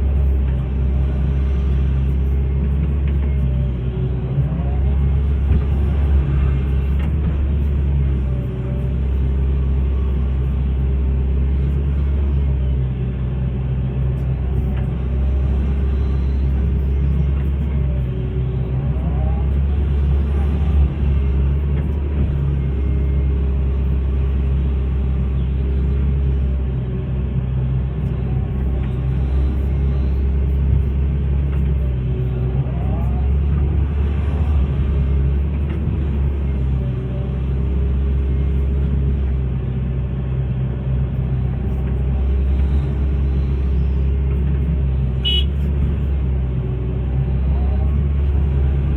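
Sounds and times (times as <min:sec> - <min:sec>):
excavator diesel engine rumbling: 0:00.0 - 0:48.9.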